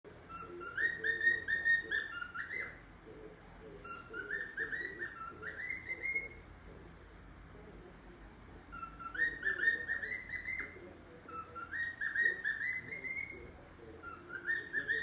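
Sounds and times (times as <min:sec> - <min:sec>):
cockatiel whistling: 0:00.3 - 0:02.8, 0:03.8 - 0:06.4, 0:08.7 - 0:15.0.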